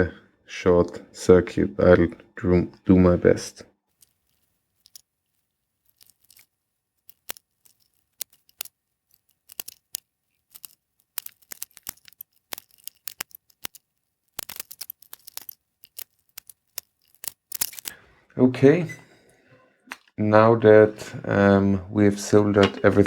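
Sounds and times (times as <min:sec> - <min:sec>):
soldering clicks and crackles: 0:05.9 - 0:18.0.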